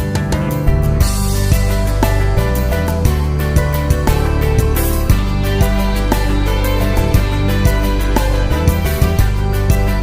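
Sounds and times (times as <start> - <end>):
cinematic instrumental music: 3.4 - 9.6.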